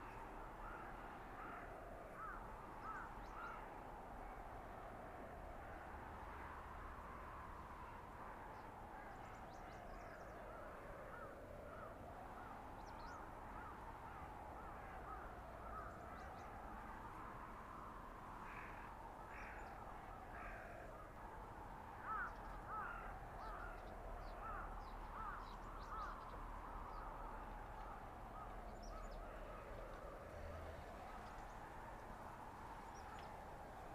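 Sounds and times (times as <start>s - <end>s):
wind howling: 0.0s - 33.9s
bird calling: 24.4s - 26.4s.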